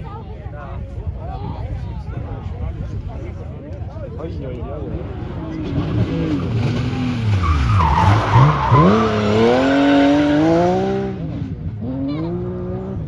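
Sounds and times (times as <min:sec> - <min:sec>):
tyres skidding: 0:05.1 - 0:12.6
race car engine revving: 0:05.3 - 0:13.0.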